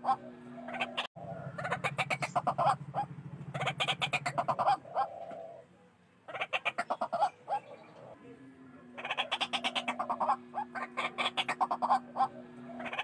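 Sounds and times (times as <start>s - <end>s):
low pulsing drone: 0.0s - 5.0s, 7.6s - 13.0s
bird harsh clucking calls: 0.0s - 8.2s, 8.9s - 13.0s.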